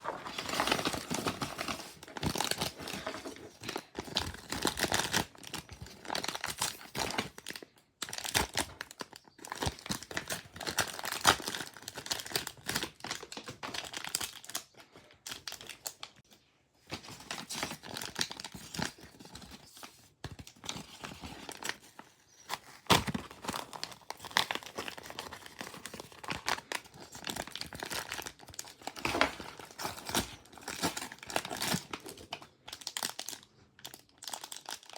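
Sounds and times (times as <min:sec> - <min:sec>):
packaging crinkling and tearing: 0:00.0 - 0:16.2, 0:17.0 - 0:34.9.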